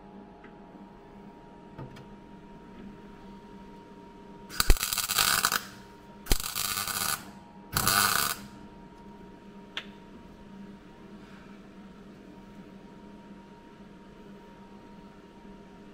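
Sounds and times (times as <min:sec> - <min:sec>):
welder click: 0:04.5 - 0:08.5
welding arc crackle: 0:04.5 - 0:08.6.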